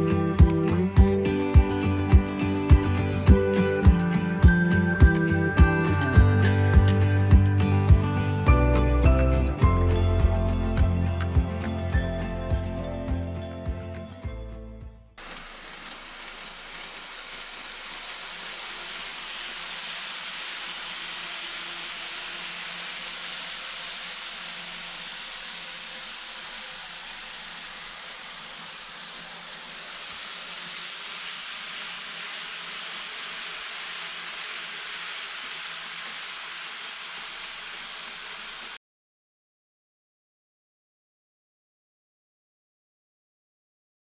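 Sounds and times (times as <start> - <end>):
model train wheels hissing on rail: 15.2 - 38.8.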